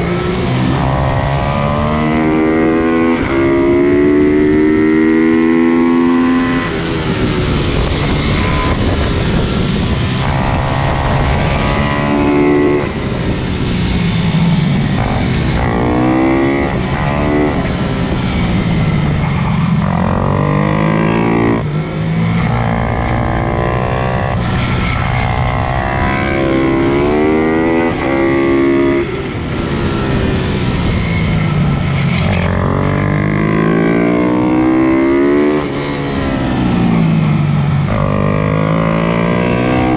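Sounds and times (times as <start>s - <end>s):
pit bike engines revving: 0.0s - 39.9s.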